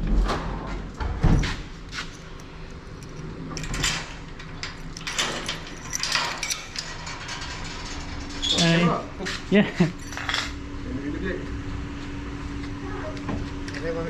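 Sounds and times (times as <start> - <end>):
door opening: 1.0 - 10.5.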